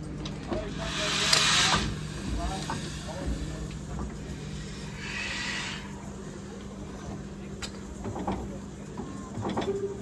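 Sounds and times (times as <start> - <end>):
steady low hum: 0.0 - 8.9
steam hissing: 0.6 - 6.4.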